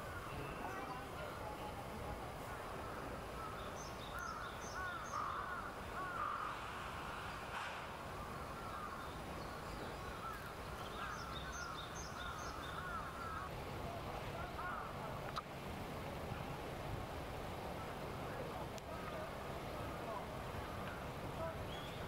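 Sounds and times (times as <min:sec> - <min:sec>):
birds calling harsh notes: 0:02.8 - 0:06.8, 0:08.1 - 0:13.5.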